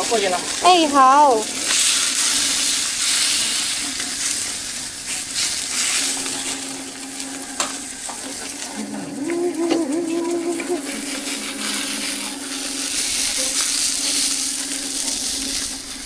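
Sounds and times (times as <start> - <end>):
food sizzling on a griddle: 0.0 - 8.6, 11.0 - 16.0
steady low hum: 3.8 - 16.0
wavering pitched tone: 5.8 - 16.0.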